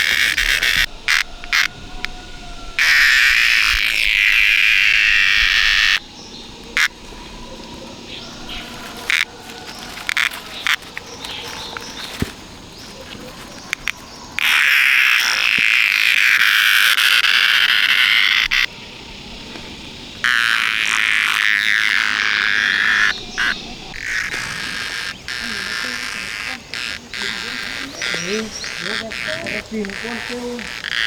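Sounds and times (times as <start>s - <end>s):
sharp clicks: 0.0s - 2.2s, 8.5s - 18.7s
frogs calling in chorus: 0.0s - 31.0s.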